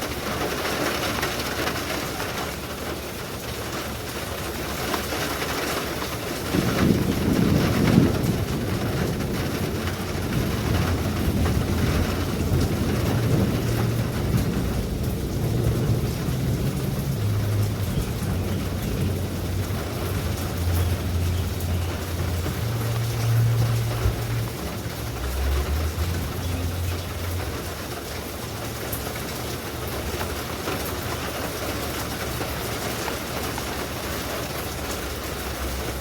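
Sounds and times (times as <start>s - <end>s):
steady rain falling: 0.0s - 36.0s
low rumble: 6.6s - 28.2s
low drone: 16.4s - 27.9s.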